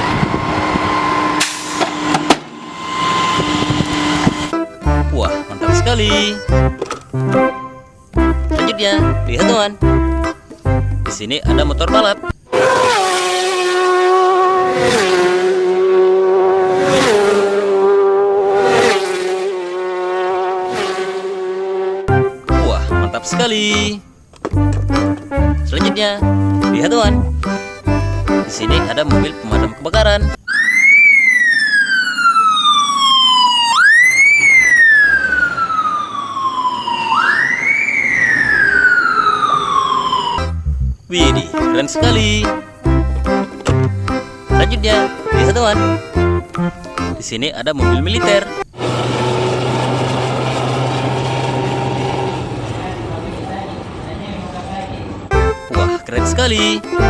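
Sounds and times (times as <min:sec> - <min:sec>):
fire engine siren wailing: 0:00.0 - 0:04.6, 0:30.4 - 0:40.7
racing motorcycle engine: 0:00.0 - 0:07.3, 0:12.4 - 0:22.4, 0:47.9 - 0:56.2.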